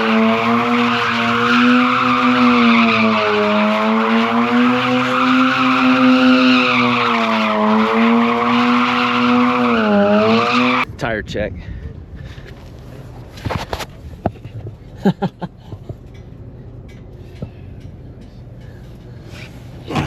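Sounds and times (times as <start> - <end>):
tires squealing: 0.0 - 10.8
rotary engine at high revs: 0.0 - 10.9.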